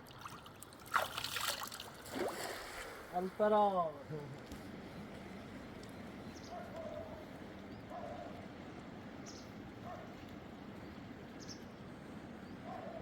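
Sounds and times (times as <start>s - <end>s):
small bird chirping: 5.9s - 8.2s, 9.2s - 9.6s.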